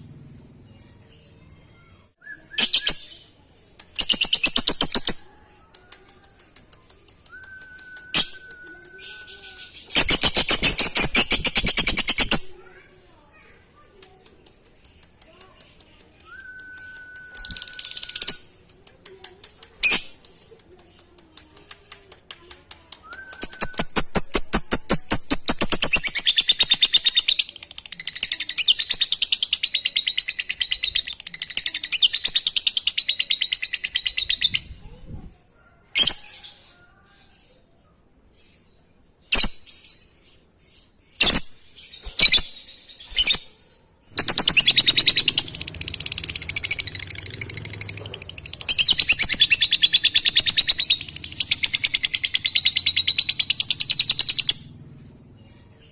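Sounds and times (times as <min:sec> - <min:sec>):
lovebird chattering trill: 0:44.2 - 0:54.7.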